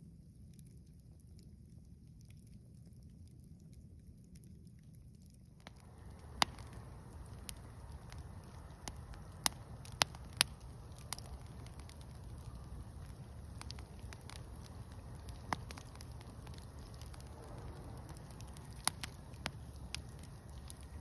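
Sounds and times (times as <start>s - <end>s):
fire crackling and popping: 0.2s - 21.0s
low rumble: 5.6s - 21.0s.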